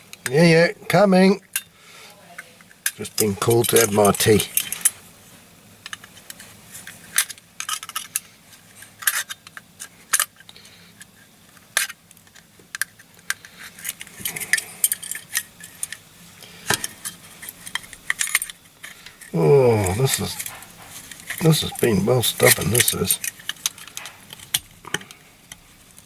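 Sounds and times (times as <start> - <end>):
hand tools clinking on metal: 2.9 - 5.0, 19.5 - 24.7.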